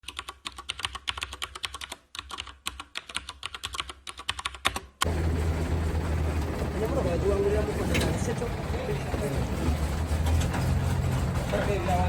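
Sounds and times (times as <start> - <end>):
keyboard typing: 0.0 - 5.1.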